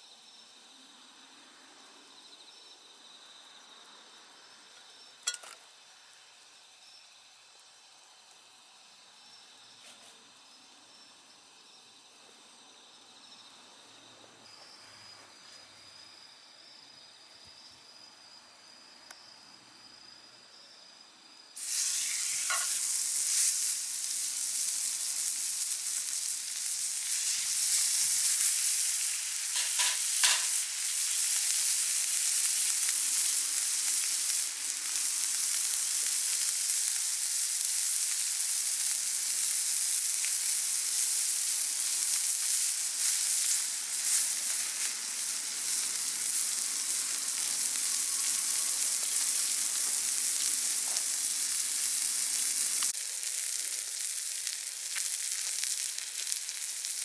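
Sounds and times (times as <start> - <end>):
sharp pops from fire: 21.6 - 57.0
steak sizzling over fire: 21.6 - 57.0.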